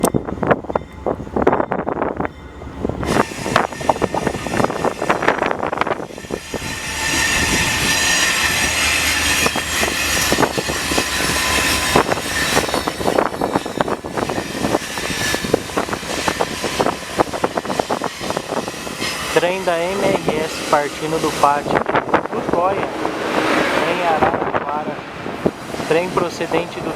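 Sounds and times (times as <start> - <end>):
train rumble: 0.0 - 26.9
wheel squeal on rails: 3.0 - 22.0
train wheels clacking over rail joints: 3.1 - 22.2.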